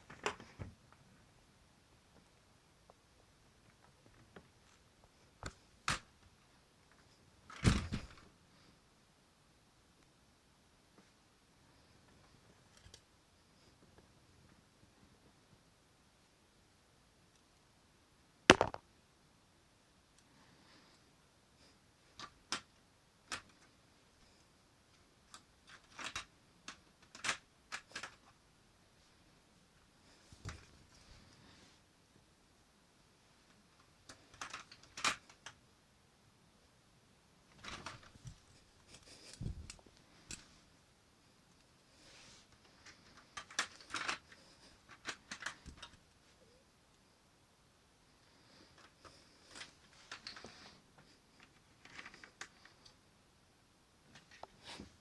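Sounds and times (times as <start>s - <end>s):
soft rustle: 37.6s - 43.4s.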